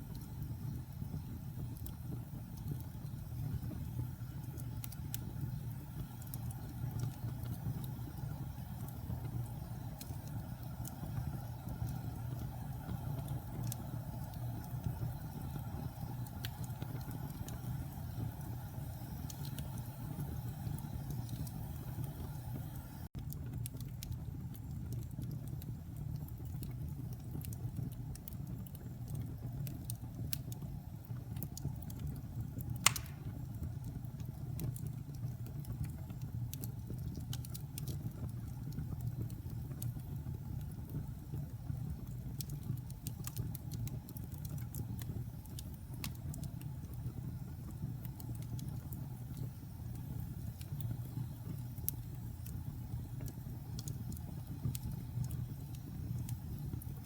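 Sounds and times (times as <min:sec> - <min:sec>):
fire crackling in fireplace: 0:00.0 - 0:57.0
sharp pop: 0:32.9 - 0:33.3.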